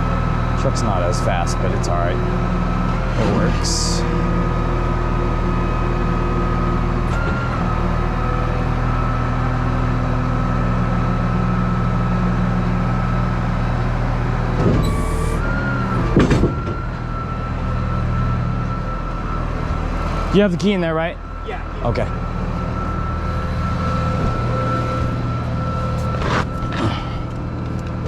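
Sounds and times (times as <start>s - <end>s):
truck engine drone with whine: 0.0s - 28.0s
mechanical clunk: 14.6s - 16.9s.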